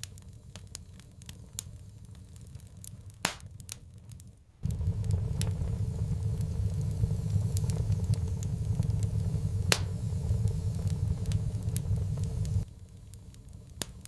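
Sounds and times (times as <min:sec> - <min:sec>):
wood fire crackling and popping: 0:00.0 - 0:14.0
steady low rumble: 0:04.6 - 0:12.7.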